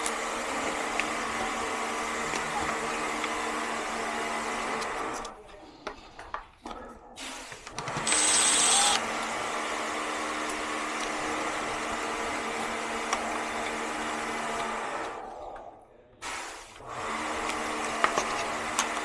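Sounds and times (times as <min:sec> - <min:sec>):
small electric motor running: 0:08.0 - 0:09.8.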